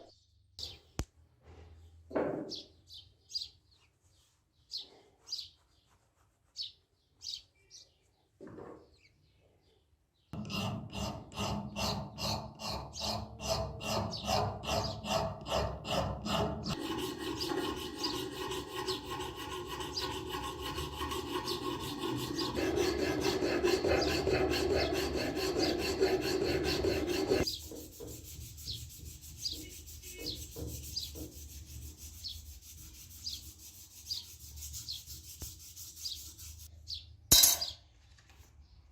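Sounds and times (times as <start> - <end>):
abrasive scraping on knife: 11.4 - 36.7.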